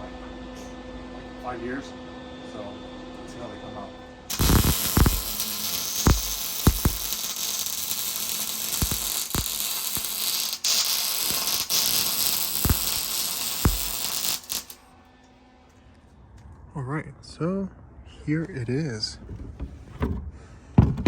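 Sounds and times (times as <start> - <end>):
sharp welding pops: 4.3 - 14.8
welding arc crackling: 4.3 - 14.8.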